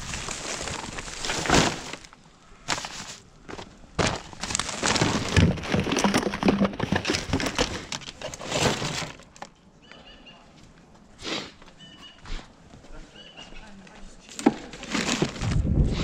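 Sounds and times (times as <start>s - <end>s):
plastic crinkling and rustling: 0.0s - 9.5s, 14.3s - 15.7s
items clattering together: 0.3s - 9.6s, 14.3s - 15.6s.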